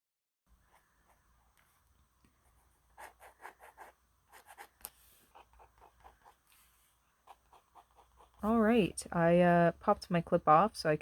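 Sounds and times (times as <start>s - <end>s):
drawing tool scratching paper: 2.5s - 9.0s.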